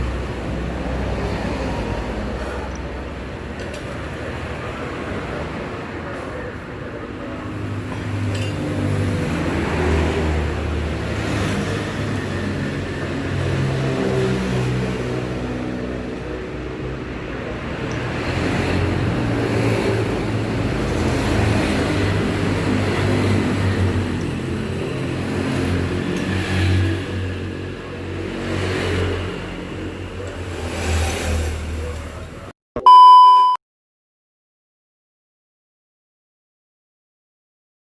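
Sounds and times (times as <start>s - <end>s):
loud electronic beep: 32.8s - 33.6s.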